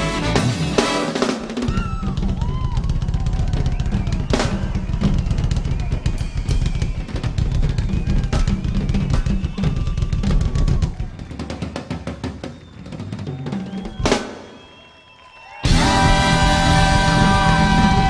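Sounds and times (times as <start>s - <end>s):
live funk band: 0.0s - 11.0s, 15.6s - 18.0s
bass drum and snare strokes: 0.0s - 11.1s.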